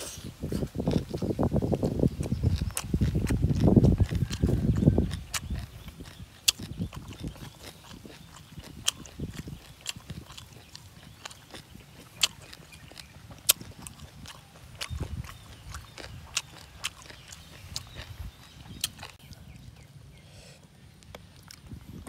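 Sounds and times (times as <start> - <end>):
person chewing crunchy salad: 0.0 - 20.2, 20.9 - 22.0.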